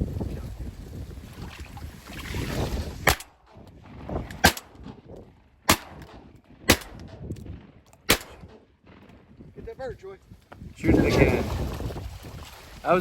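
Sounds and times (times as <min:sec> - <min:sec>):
shotgun shots: 0:03.0 - 0:03.6, 0:04.4 - 0:05.1, 0:05.7 - 0:07.3, 0:08.0 - 0:09.0.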